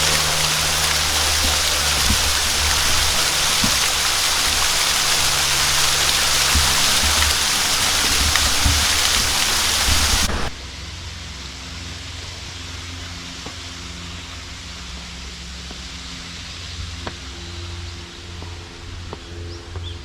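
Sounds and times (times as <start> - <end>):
water washing: 0.0 - 10.6
waterfall roaring: 0.0 - 10.6
background hum: 0.0 - 20.0.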